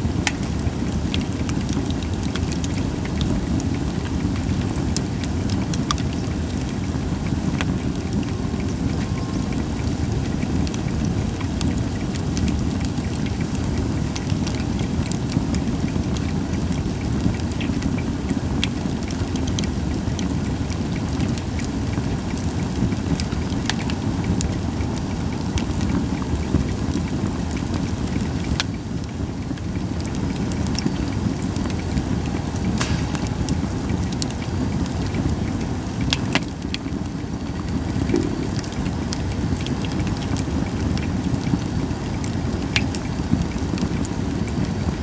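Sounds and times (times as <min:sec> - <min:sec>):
wood fire crackling: 0:00.0 - 0:45.0
low rumble: 0:32.3 - 0:35.5.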